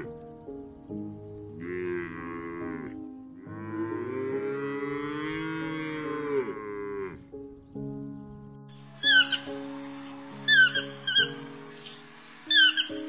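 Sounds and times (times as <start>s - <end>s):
cow mooing: 1.6s - 7.3s.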